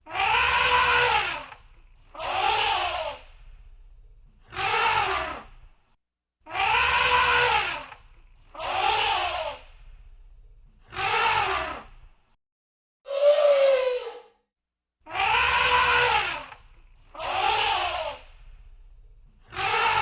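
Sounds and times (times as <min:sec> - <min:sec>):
elephant trumpeting: 0:00.1 - 0:01.5, 0:06.6 - 0:07.8, 0:15.2 - 0:16.5
faint low rumble: 0:03.2 - 0:04.5, 0:09.6 - 0:10.9, 0:18.2 - 0:19.5.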